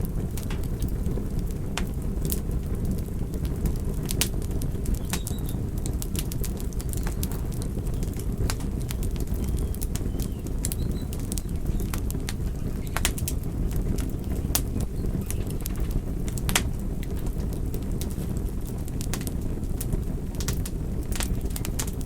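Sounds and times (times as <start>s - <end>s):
fire snaps and pops: 0.0s - 22.0s
wood fire crackling: 0.0s - 22.0s.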